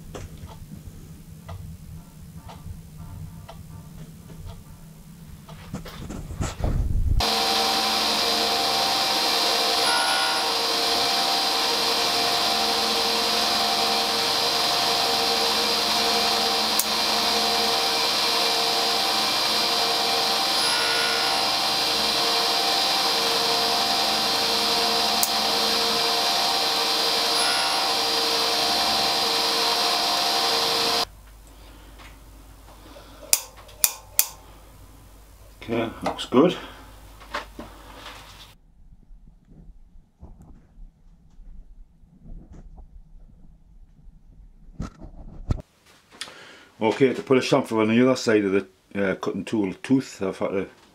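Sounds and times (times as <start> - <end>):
grinder whining: 7.2 - 31.1.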